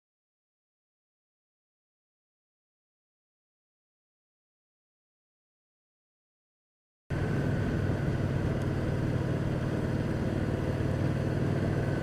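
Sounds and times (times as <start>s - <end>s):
motorcycle engine running: 7.1s - 12.0s.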